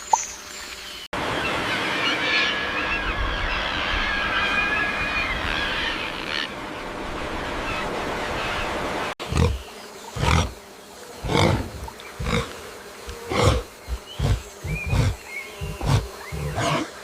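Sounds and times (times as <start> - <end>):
animal roaring grunts: 9.2 - 9.6, 10.2 - 10.5, 11.2 - 12.6, 13.3 - 16.9.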